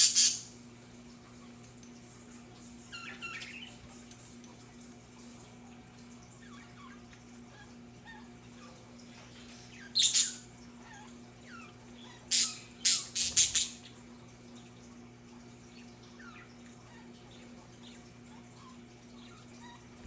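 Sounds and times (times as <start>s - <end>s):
budgerigars chirping: 0.0s - 0.5s, 9.8s - 10.4s, 11.5s - 13.9s.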